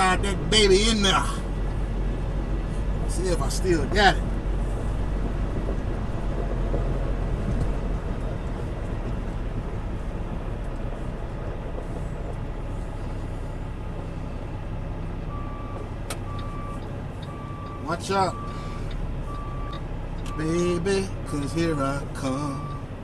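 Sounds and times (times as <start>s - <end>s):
diesel truck engine idling: 0.0s - 23.0s
truck reversing alarm beeping: 15.2s - 22.9s.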